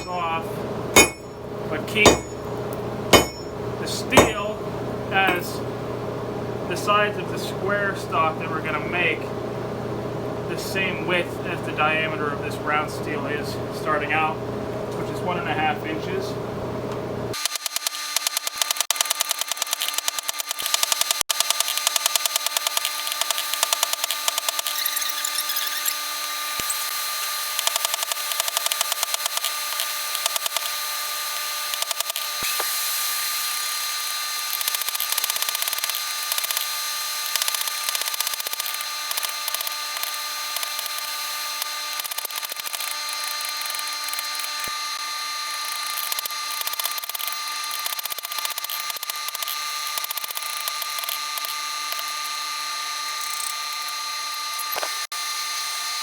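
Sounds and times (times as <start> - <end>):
hammer strikes on steel: 0.0 - 0.4, 1.0 - 4.6
shop machine humming: 0.0 - 17.4.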